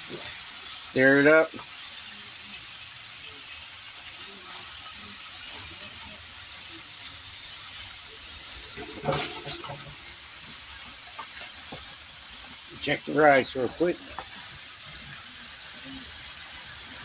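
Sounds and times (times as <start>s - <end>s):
food sizzling in a wok: 0.0s - 17.0s
spatula scraping and knocking wok: 8.5s - 12.6s.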